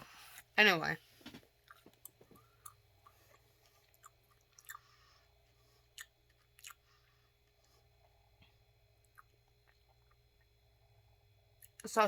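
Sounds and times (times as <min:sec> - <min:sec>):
person chewing: 0:01.6 - 0:08.2, 0:09.0 - 0:10.6.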